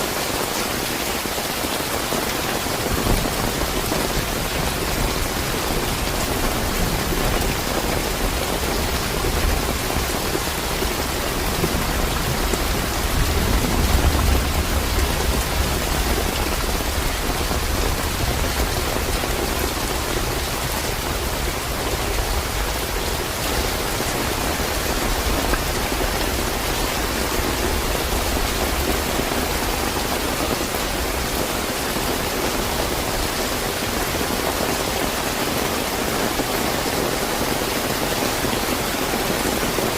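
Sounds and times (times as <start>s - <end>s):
heavy rain hiss: 0.0s - 39.9s
low thunder rumble: 2.8s - 30.3s.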